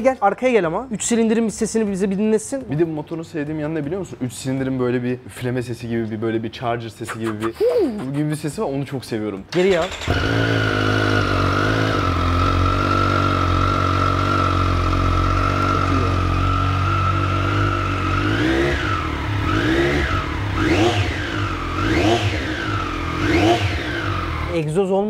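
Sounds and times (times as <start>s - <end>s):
quick throttle blips: 9.5s - 24.5s
motorcycle engine idling: 9.8s - 24.6s.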